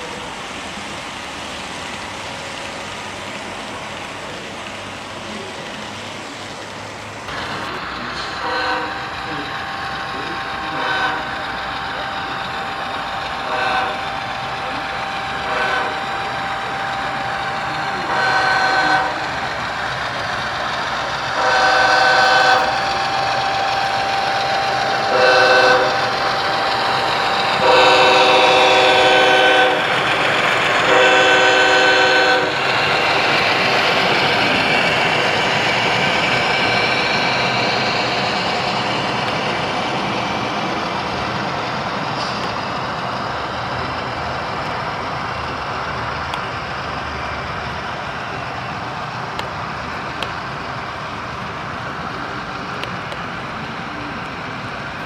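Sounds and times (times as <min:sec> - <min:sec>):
model train horn blasts: 0:08.4 - 0:09.5, 0:10.1 - 0:11.5, 0:13.2 - 0:19.3, 0:21.3 - 0:30.0, 0:30.8 - 0:32.6.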